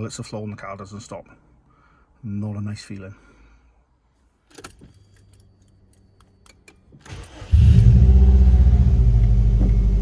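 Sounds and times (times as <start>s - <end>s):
car engine starting and idling: 7.0s - 10.0s.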